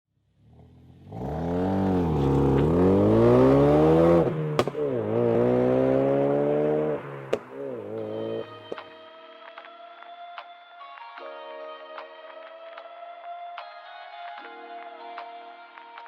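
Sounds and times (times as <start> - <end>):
car engine revving: 0.2 - 8.6
exhaust crack: 0.4 - 8.6.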